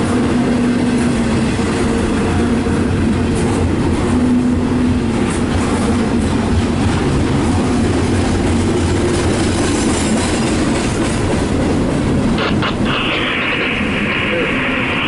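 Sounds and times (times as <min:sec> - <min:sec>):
freight train rumbling over rails: 0:00.0 - 0:15.0
high hiss: 0:12.4 - 0:15.0.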